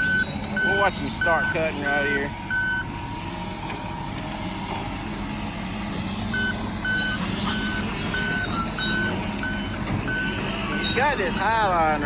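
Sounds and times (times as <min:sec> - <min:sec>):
backup alarm beeping: 0:00.0 - 0:02.9, 0:06.3 - 0:11.7
diesel engine running: 0:00.0 - 0:12.0.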